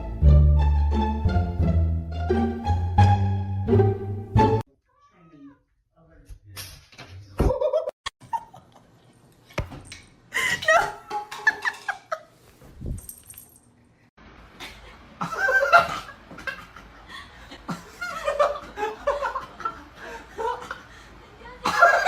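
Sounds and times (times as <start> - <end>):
people laughing: 15.2 - 22.0.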